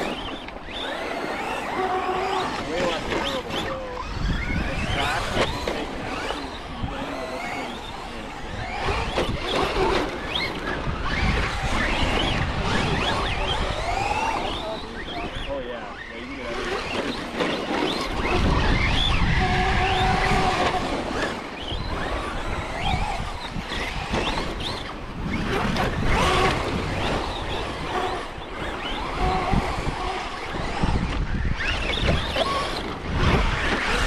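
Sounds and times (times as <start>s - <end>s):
electric toy truck motors whining: 0.0s - 34.0s
wind rumble on microphone: 0.0s - 34.0s.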